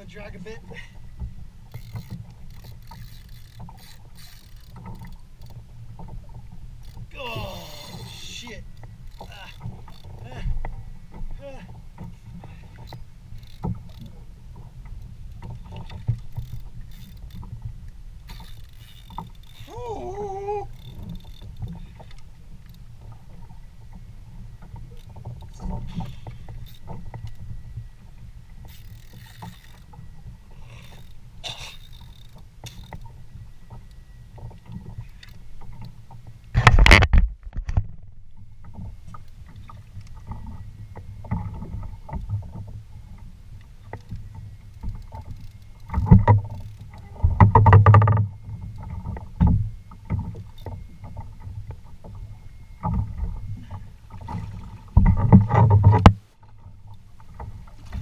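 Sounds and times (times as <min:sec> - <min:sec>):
water rumbling around kayak: 0:00.0 - 0:58.0
splashing and knocking: 0:54.2 - 0:56.2.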